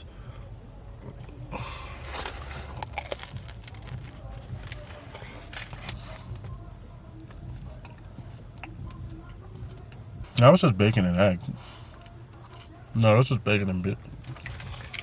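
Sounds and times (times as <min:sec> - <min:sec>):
low steady rumble: 0:00.0 - 0:15.0
person eating sandwich: 0:01.0 - 0:06.5, 0:14.2 - 0:15.0.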